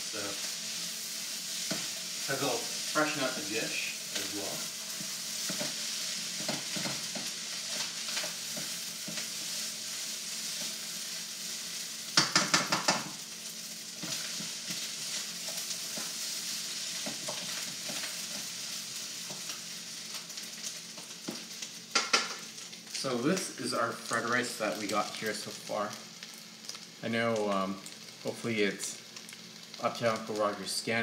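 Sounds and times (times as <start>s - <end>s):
utensil scraping wok: 0.0s - 22.4s
rice sizzling in a wok: 0.0s - 31.0s
utensil knocking against wok: 12.2s - 13.1s.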